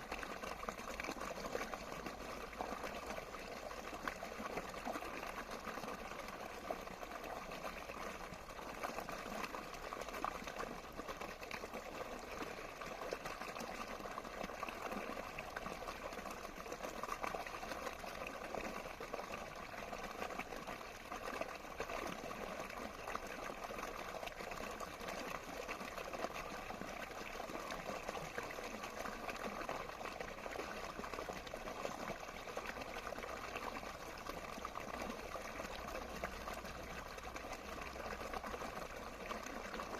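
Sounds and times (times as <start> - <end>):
running water flowing: 21.7 - 39.9.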